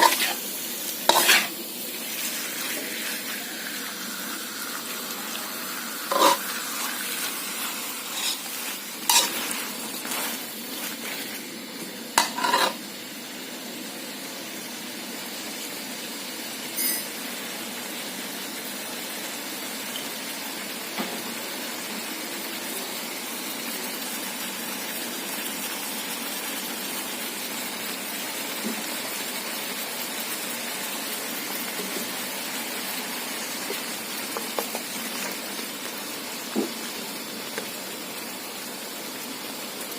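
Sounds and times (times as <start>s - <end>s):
metal spatula scraping a pan: 0.0s - 0.4s, 1.1s - 2.8s, 6.1s - 11.4s, 12.2s - 12.8s
food sizzling in a hot pan: 0.0s - 39.9s.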